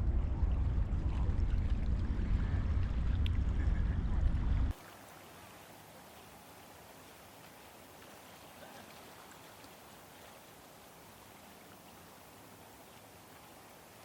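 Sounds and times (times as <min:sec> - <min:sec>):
wind buffeting microphone: 0:00.0 - 0:04.8
faint steady hiss: 0:04.6 - 0:14.0.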